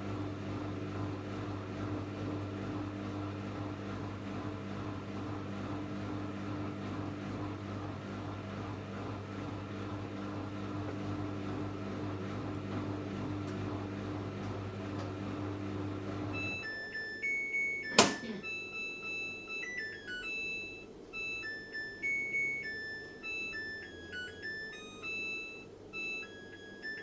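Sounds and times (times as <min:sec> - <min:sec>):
washing machine humming: 0:00.0 - 0:27.0
high electronic tones tune: 0:16.4 - 0:27.0.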